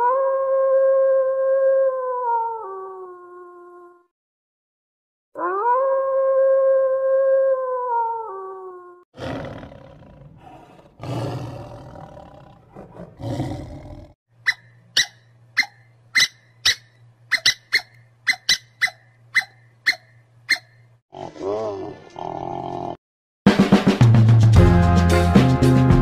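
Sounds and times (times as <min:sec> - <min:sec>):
wolf howling: 0:00.0 - 0:04.0, 0:05.4 - 0:14.1
lion roaring: 0:09.2 - 0:14.2, 0:21.1 - 0:23.0.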